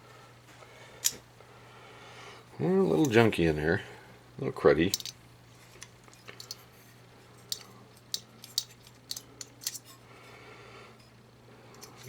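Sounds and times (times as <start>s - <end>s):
faint steady hum: 0.0s - 12.0s
light metal clicks and taps: 4.9s - 5.2s, 7.4s - 10.0s.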